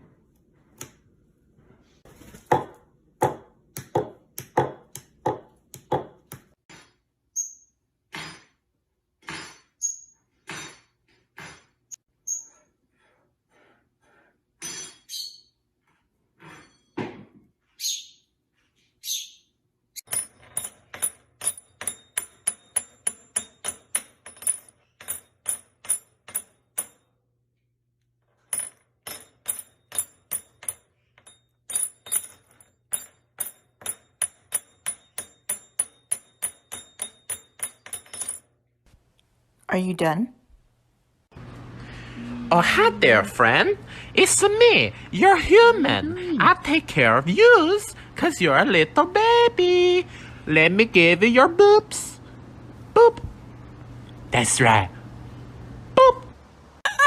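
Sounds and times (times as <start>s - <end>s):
bird chirping: 15.0s - 15.6s, 17.7s - 18.4s, 19.0s - 19.6s.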